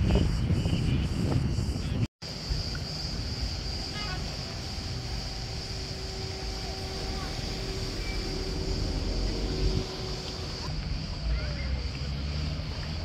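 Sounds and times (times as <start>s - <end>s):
high-pitched hiss: 0.0s - 13.0s
distant boat engine droning: 2.3s - 10.8s.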